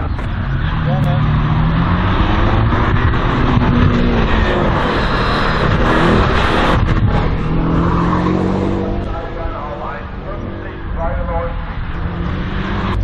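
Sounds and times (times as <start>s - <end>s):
race car engine revving: 0.0s - 13.0s.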